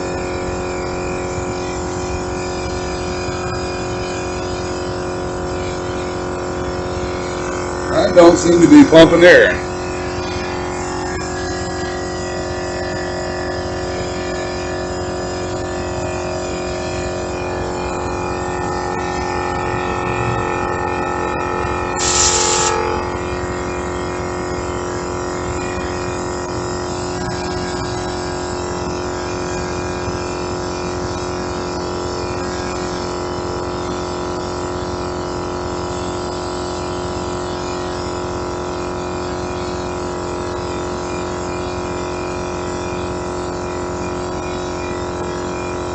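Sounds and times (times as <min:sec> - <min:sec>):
air compressor humming: 0:00.0 - 0:45.9
brief air hiss: 0:22.0 - 0:23.0.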